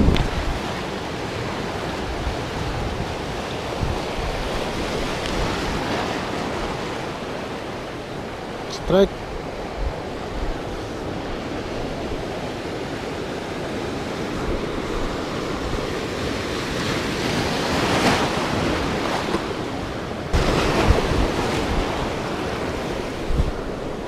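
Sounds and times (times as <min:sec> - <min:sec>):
wind blowing on microphone: 0:00.0 - 0:00.9, 0:02.0 - 0:06.8, 0:20.3 - 0:24.0
sea washing: 0:00.0 - 0:24.0.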